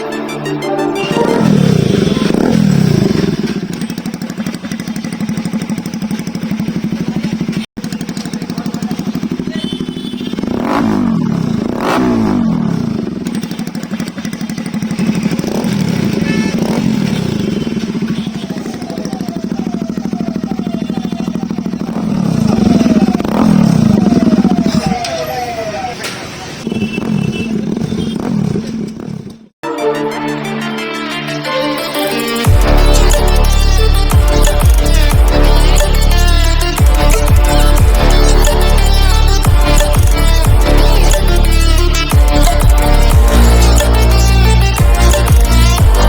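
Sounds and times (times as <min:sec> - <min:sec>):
motorcycle engine idling and revving: 0:00.9 - 0:29.6, 0:31.7 - 0:46.0.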